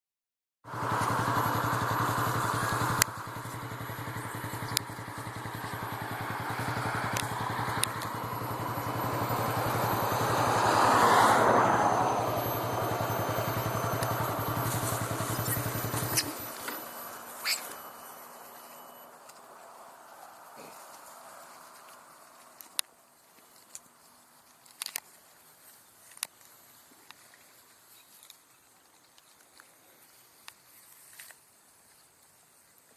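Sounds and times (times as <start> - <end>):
vehicle engine idling: 0.7 - 24.4
sharp clicks: 2.2 - 9.9.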